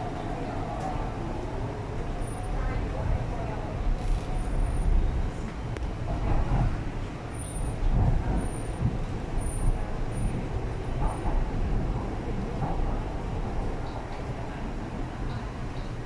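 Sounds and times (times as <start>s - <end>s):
train cabin rumble: 0.0s - 16.0s.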